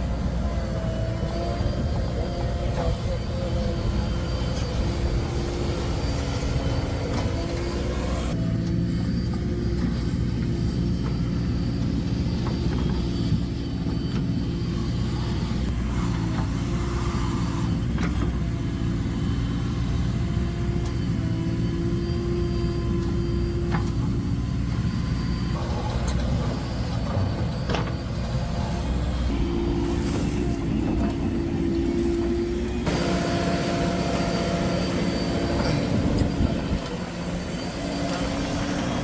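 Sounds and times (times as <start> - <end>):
heavy diesel engine running: 0.0 - 39.0.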